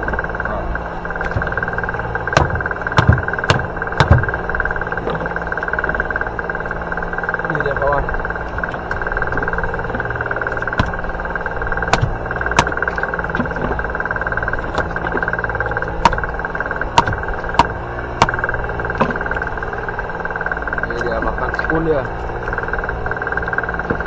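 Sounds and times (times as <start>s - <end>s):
boat engine running: 0.0s - 24.0s
sharp knocks: 1.2s - 4.6s, 8.7s - 19.6s.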